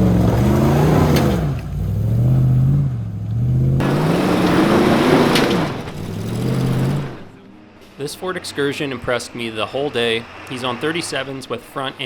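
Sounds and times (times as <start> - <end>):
suv engine revving: 0.0 - 7.4.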